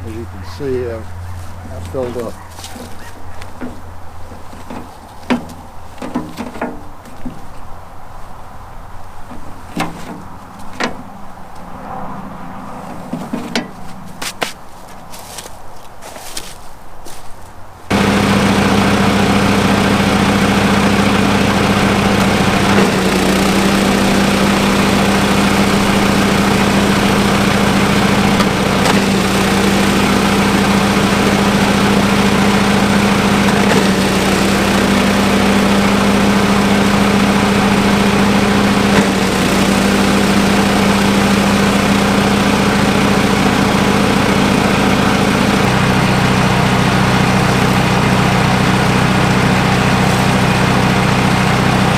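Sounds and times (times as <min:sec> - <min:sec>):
small petrol engine running: 0:17.9 - 0:51.9.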